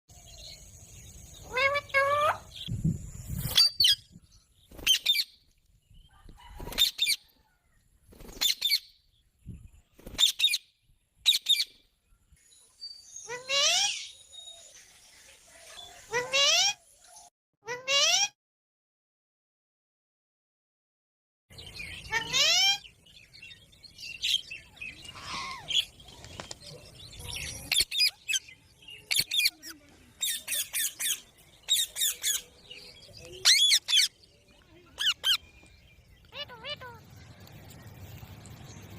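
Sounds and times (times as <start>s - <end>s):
parrot squawking: 1.5s - 2.5s, 22.1s - 22.8s, 33.4s - 34.1s, 36.3s - 37.0s.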